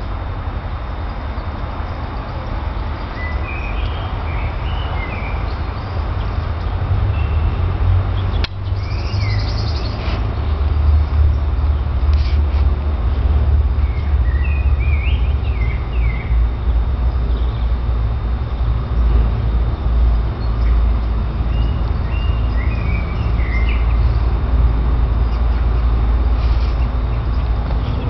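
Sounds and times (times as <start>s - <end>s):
loud steady low rumble: 0.0s - 28.0s
bird chirping: 2.2s - 11.9s, 13.8s - 16.4s, 19.8s - 24.4s.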